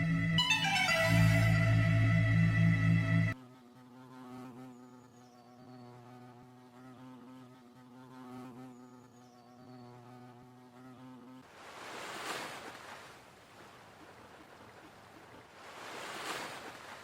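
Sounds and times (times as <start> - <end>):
insect-like buzzing drone: 1.4 - 11.5.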